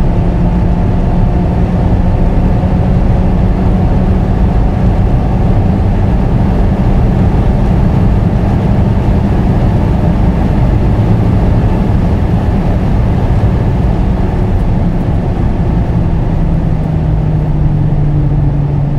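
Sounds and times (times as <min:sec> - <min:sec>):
car engine pulling hard: 0:00.0 - 0:18.9
wind and road noise: 0:00.0 - 0:18.9.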